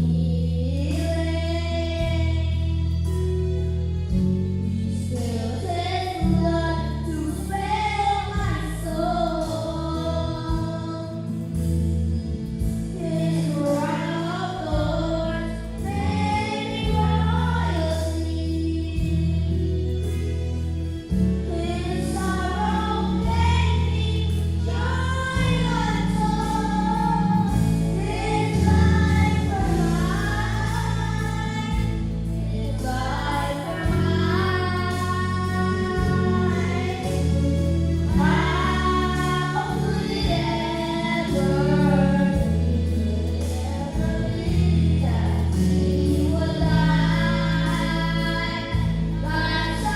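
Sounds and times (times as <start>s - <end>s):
held steady bass: 0.0s - 49.9s
voices singing gospel song: 12.9s - 19.6s, 21.5s - 49.9s.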